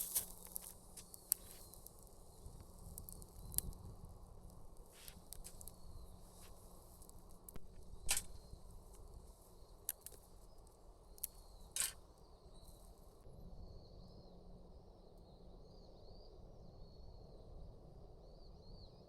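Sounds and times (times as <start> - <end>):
short sharp clicks and crackles: 7.5 - 8.4, 11.2 - 12.0.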